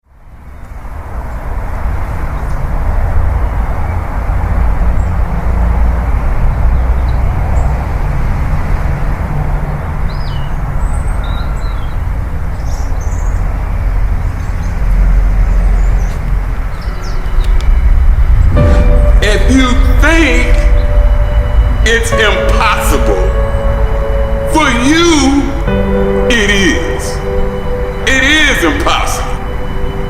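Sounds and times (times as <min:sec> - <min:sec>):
bird chirps: 0:10.0 - 0:30.0
low outdoor rumble: 0:12.0 - 0:28.7.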